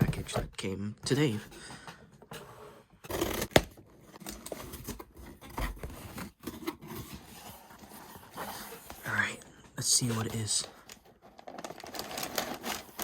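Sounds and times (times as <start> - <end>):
rubbing and scraping on package: 10.0 - 13.0.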